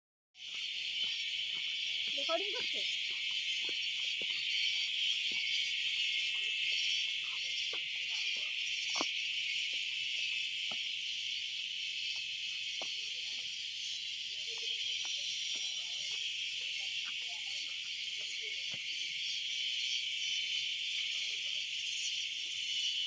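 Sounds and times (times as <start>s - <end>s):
shrill insect chorus: 0.4s - 23.0s.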